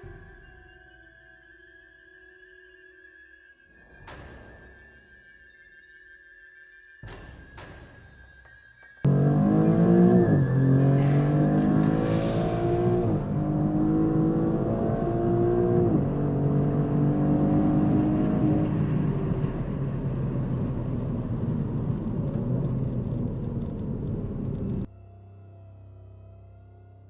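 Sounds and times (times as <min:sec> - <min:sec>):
car engine accelerating: 0:09.1 - 0:24.9.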